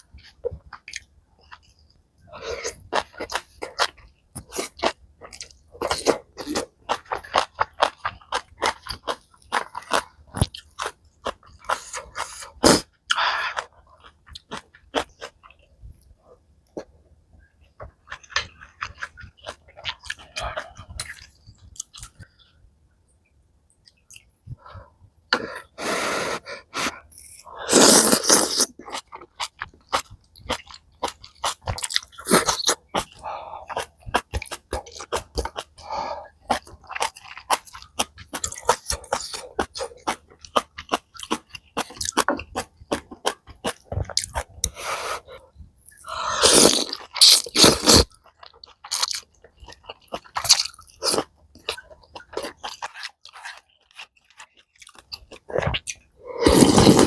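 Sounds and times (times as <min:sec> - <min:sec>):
wet chewing and mouth clicks: 0:00.2 - 0:02.0, 0:17.7 - 0:22.4, 0:27.1 - 0:57.0.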